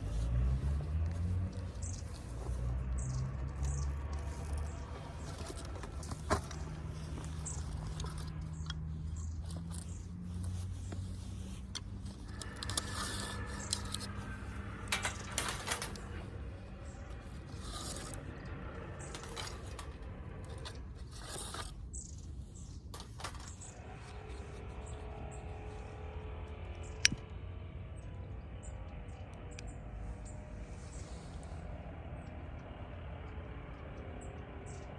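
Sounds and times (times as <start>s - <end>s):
metallic clicks and scrapes: 0.0s - 25.9s
steady low hum: 0.0s - 34.9s.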